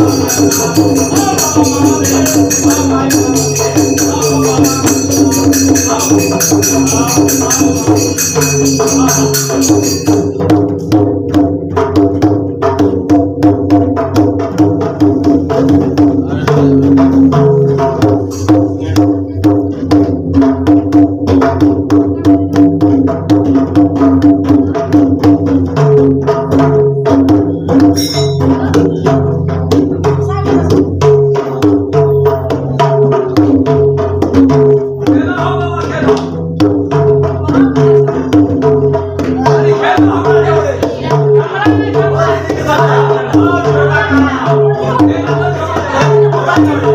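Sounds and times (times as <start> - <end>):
hand cymbals clashing: 0.0 - 11.0, 18.1 - 18.9, 27.6 - 29.0
hand drum fast rhythm: 0.0 - 46.9.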